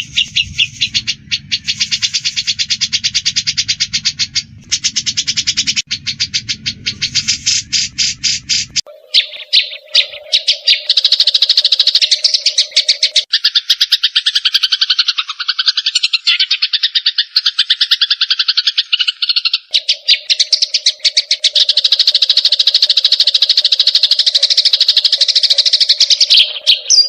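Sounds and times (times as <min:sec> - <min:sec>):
low hum: 0:00.0 - 0:08.9
birds chirping harshly: 0:00.0 - 0:27.0.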